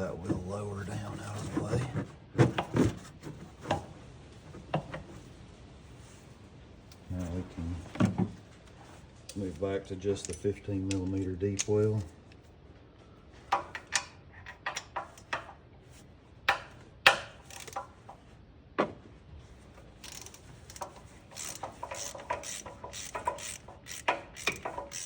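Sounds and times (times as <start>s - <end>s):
ratchet clicking: 17.4s - 17.9s, 20.0s - 25.0s.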